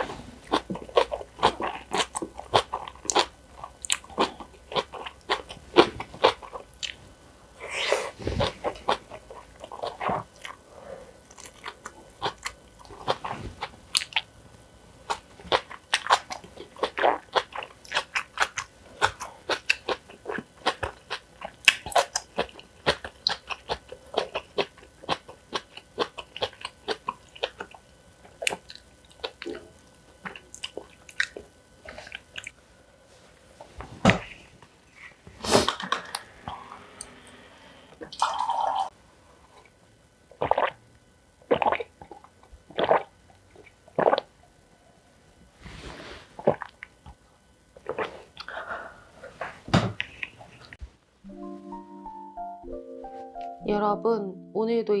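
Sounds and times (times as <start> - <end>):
chewing and crunching food: 0.0 - 32.6, 38.0 - 40.8, 47.8 - 50.8.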